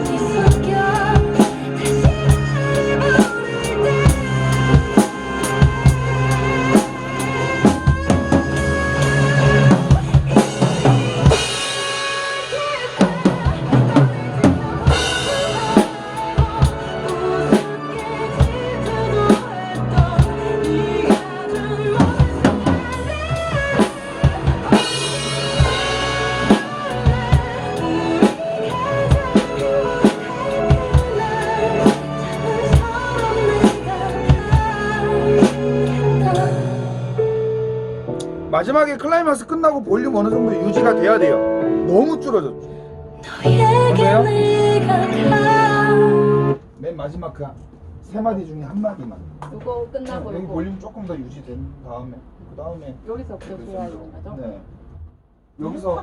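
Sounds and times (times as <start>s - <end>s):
live drum kit: 0.0s - 38.5s
pop ballad playing: 0.0s - 46.7s.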